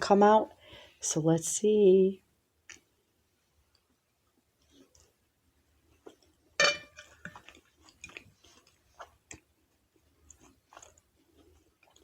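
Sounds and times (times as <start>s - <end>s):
close chewing and mouth sounds: 3.7s - 12.0s.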